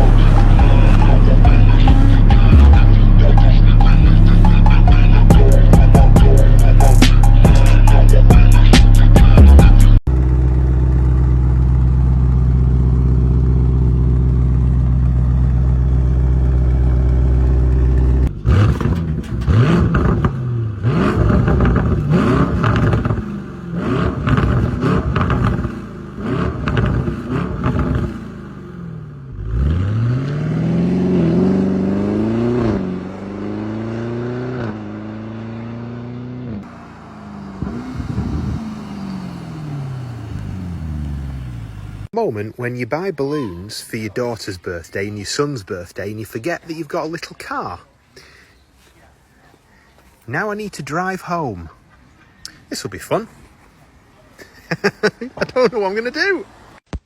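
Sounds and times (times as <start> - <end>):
car engines revving and passing: 0.0 - 8.7, 10.1 - 42.1, 51.7 - 56.8
steady low drone: 0.0 - 18.3.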